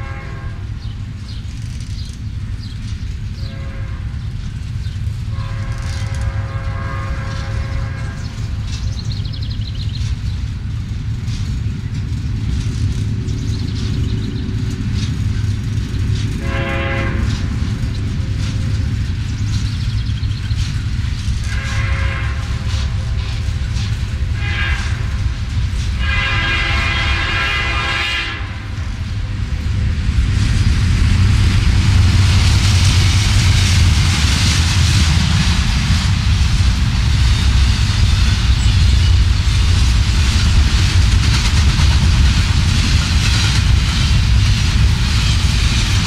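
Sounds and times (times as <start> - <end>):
locomotive air horn: 0.0 - 0.7, 3.4 - 4.2, 5.3 - 8.3, 16.4 - 17.5, 21.4 - 23.4, 24.4 - 25.2, 26.0 - 28.7
freight train rumbling: 0.0 - 46.0.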